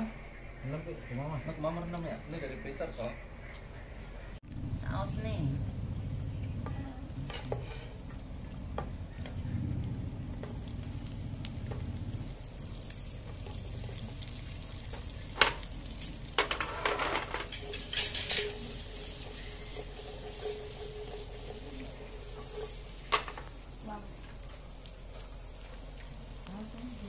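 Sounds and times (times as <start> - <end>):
onion and garlic sizzling: 4.5 - 27.0
pan clatter: 14.7 - 23.6.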